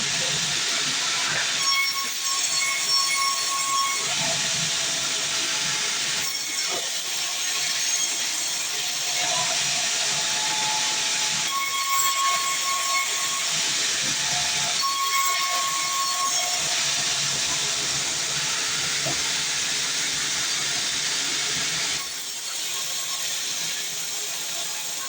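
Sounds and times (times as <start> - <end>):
bandsaw cutting log: 9.0 - 24.5.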